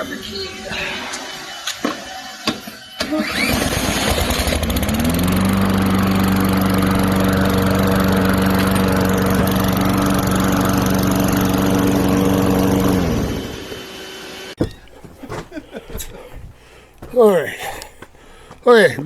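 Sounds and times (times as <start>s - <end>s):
small gasoline engine running: 3.2s - 14.5s.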